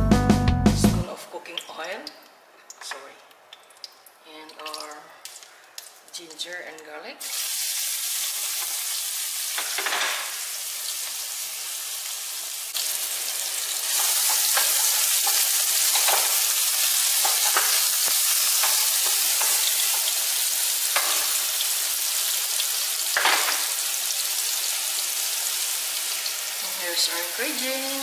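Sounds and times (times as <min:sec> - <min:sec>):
food sizzling in hot oil: 0:07.2 - 0:28.0
spatula scraping and tapping pan: 0:17.1 - 0:20.2.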